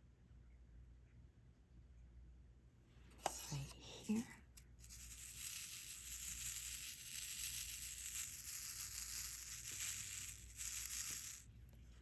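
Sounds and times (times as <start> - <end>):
small plastic beads rattling in tray: 4.1 - 11.7.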